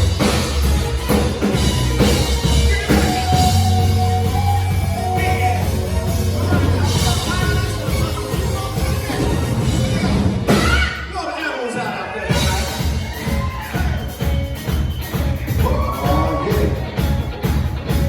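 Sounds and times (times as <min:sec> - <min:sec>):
live rock band playing: 0:00.0 - 0:11.2, 0:12.3 - 0:18.0
person singing: 0:02.0 - 0:14.2.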